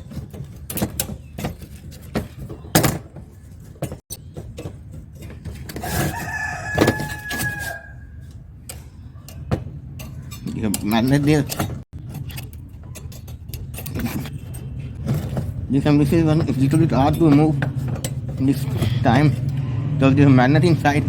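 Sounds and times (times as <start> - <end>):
loose metal parts knocking: 0.0 - 7.7, 8.7 - 19.6
rooster crowing: 5.8 - 8.3.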